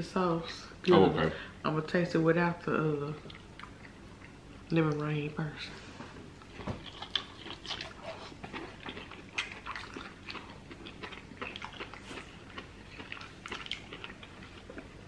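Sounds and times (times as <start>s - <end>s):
wet chewing and mouth sounds: 3.2s - 5.1s, 6.4s - 15.0s.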